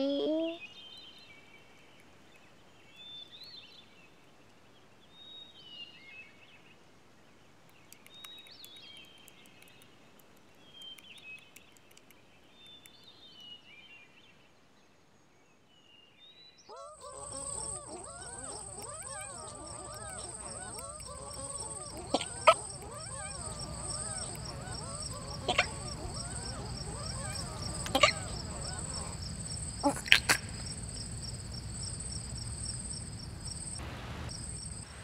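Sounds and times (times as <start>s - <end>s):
faint birdsong chirping: 15.4s - 35.0s.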